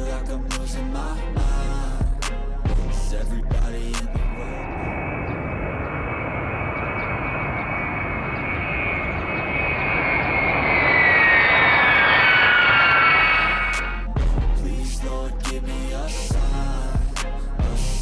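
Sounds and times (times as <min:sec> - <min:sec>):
jet airplane passing over: 0:03.8 - 0:14.2.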